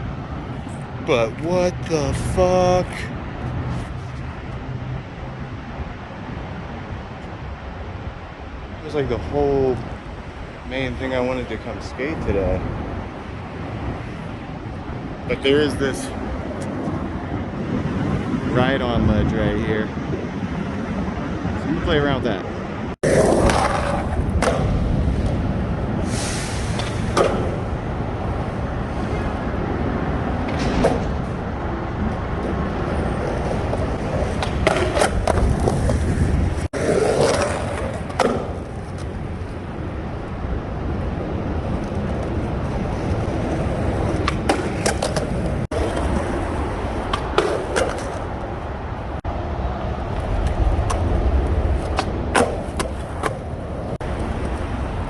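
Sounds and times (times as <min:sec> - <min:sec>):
skateboard wheels rolling on pavement: 0:00.0 - 0:55.0
skateboard scraping and clacking: 0:23.0 - 0:25.4, 0:26.7 - 0:27.7, 0:32.1 - 0:39.6, 0:41.7 - 0:48.4, 0:50.2 - 0:53.5.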